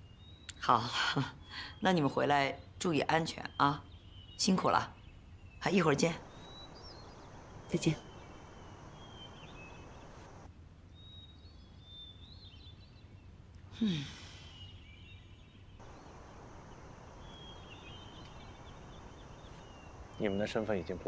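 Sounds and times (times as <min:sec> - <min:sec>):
quiet outdoor ambience: 0:00.0 - 0:21.0
faint bird chirps: 0:05.6 - 0:11.2, 0:15.8 - 0:21.0
person sighing: 0:13.8 - 0:14.4.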